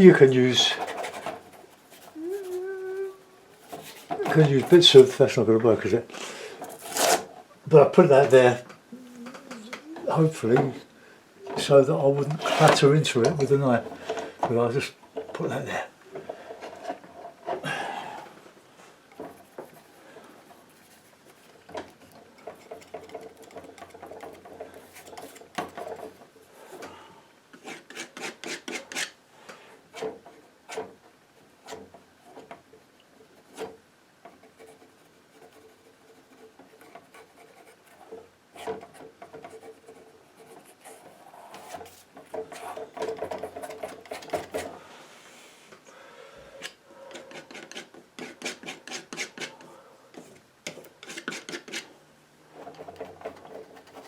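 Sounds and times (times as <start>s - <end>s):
painting knife scraping paint: 0.5s - 2.7s, 20.6s - 26.2s, 27.6s - 29.2s, 33.3s - 44.7s, 47.0s - 51.9s, 52.6s - 54.0s.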